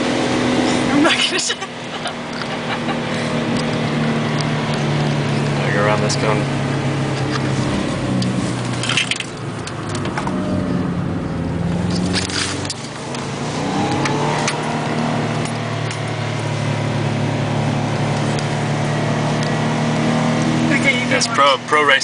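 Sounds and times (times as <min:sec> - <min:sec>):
car engine at low revs: 0:00.0 - 0:22.0.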